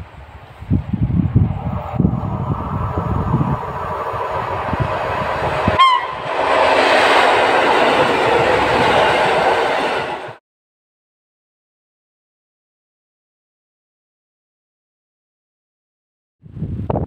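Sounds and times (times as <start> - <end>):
train wheel and rail noise: 0.0 - 10.4
train horn toot: 5.6 - 6.3.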